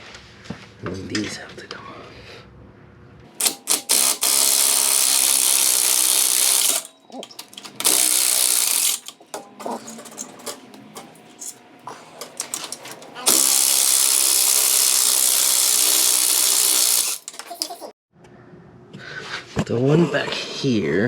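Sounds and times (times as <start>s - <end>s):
power tool running: 3.4s - 17.6s.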